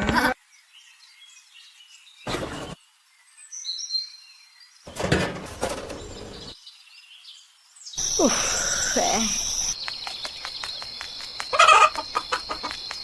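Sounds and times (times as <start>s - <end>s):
rural background ambience: 0.0s - 13.0s
birds chirping: 0.5s - 13.0s.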